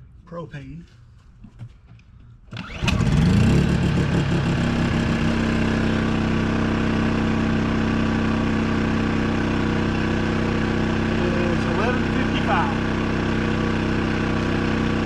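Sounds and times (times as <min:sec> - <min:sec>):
generator engine starting and running: 0:00.0 - 0:15.0.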